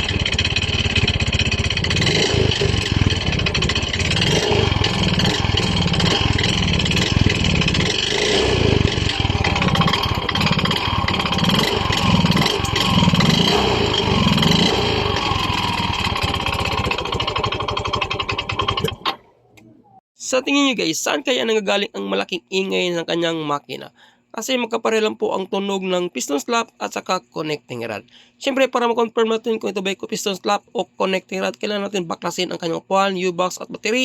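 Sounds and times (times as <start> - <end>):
mechanical knocking inside engine: 0.0 - 19.2
scooter engine running: 0.0 - 19.2.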